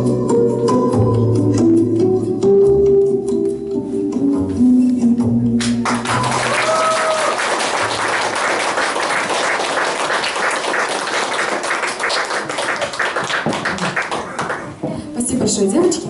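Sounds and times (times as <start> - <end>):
audience applause: 5.8 - 14.9.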